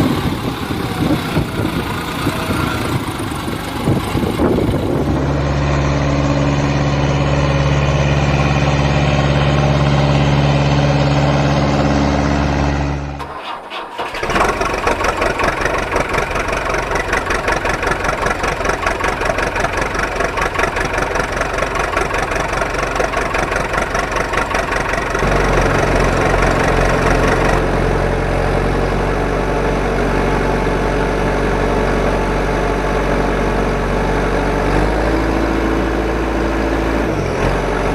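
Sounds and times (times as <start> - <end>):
engine running loudly: 0.0 - 37.9.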